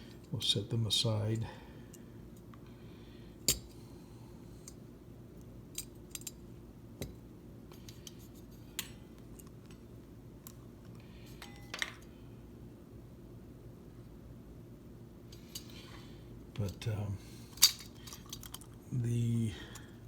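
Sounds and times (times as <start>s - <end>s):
faint low hum: 0.0s - 20.0s
metal parts clinking on workbench: 11.4s - 12.0s, 17.5s - 18.7s.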